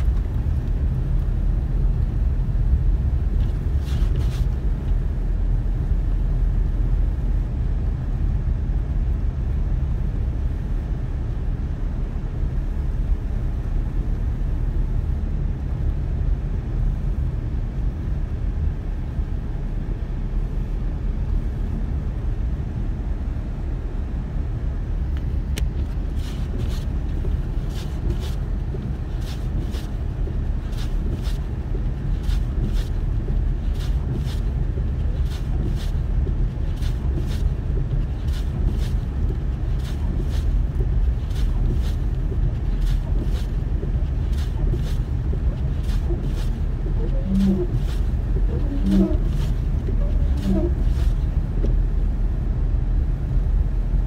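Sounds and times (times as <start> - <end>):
wind buffeting microphone: 25.4 - 54.0.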